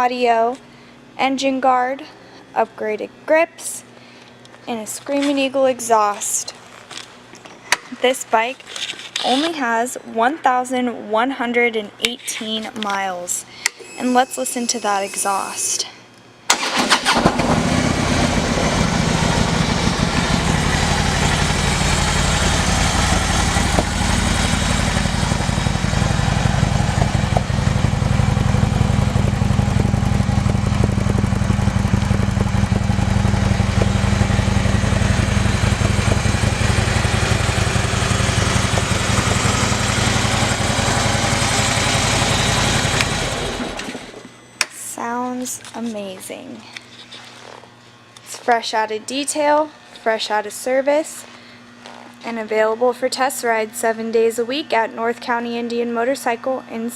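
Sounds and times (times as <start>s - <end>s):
motorcycle engine idling: 17.4s - 44.1s.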